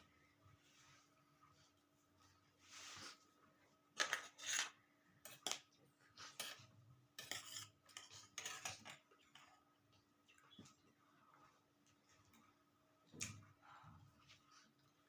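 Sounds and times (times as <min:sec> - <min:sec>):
utensil scraping a plate: 0:04.0 - 0:05.6, 0:06.2 - 0:09.6.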